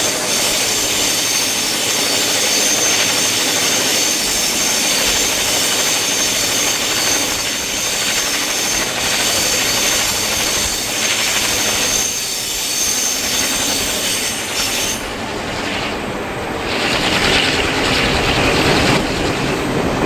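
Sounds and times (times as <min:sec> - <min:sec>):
high wheel squeal: 0:00.0 - 0:16.0
train wheel and air rush: 0:00.0 - 0:20.0.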